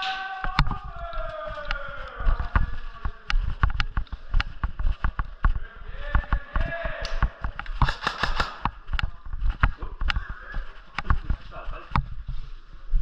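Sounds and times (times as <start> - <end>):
airsoft gunfire clicks: 7.6 - 9.1.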